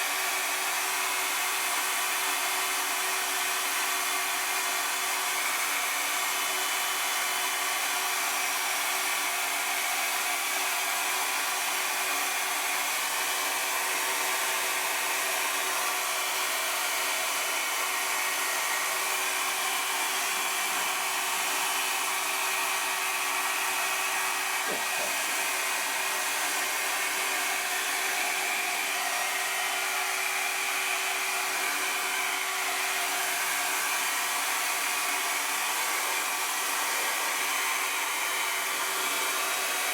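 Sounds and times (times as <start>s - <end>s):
hot-air blower whooshing: 11.5s - 39.9s.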